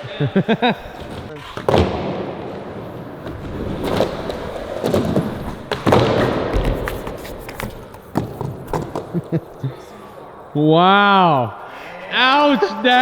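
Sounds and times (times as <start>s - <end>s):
skateboard rolling: 0.6s - 10.5s
skateboard clacks and thuds: 1.0s - 9.5s.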